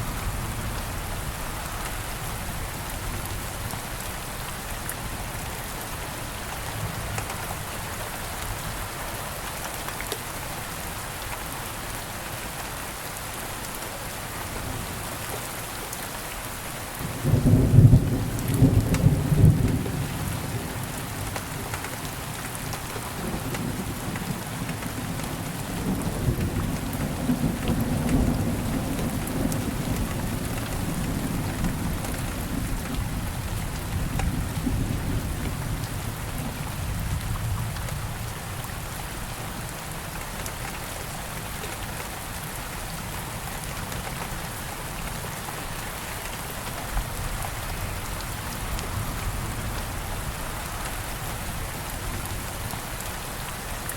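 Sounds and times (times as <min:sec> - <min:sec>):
steady rain falling: 0:00.0 - 0:53.9
low rumble of thunder: 0:17.0 - 0:21.2, 0:23.1 - 0:39.0.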